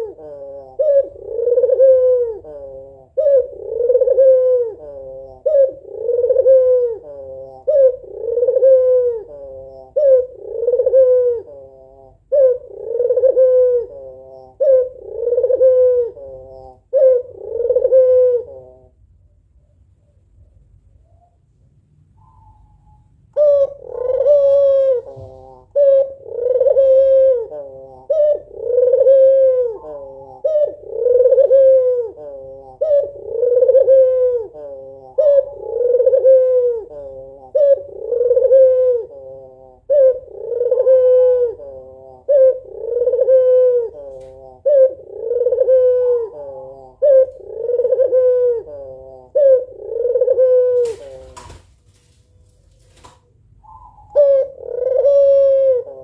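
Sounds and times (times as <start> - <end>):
dove cooing: 0.0 - 19.0, 22.2 - 51.7, 53.5 - 56.0.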